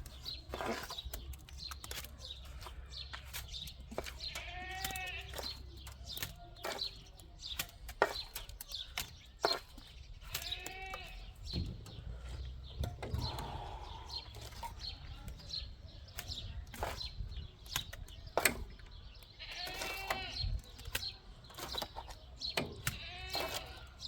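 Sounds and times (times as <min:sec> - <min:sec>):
livestock bleating: 0:04.2 - 0:05.5, 0:10.4 - 0:11.3, 0:19.4 - 0:20.4, 0:22.9 - 0:23.9.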